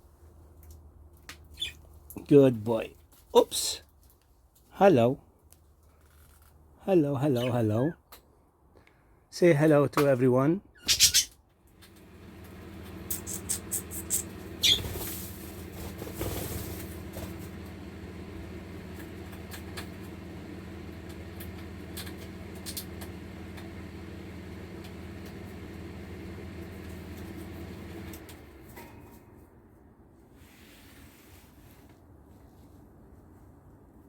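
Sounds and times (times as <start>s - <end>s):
low motor hum: 11.8s - 29.0s.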